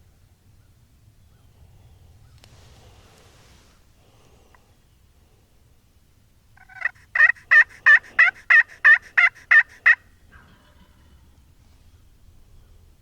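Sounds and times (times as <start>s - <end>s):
turkey call hen yelps: 6.6s - 11.1s.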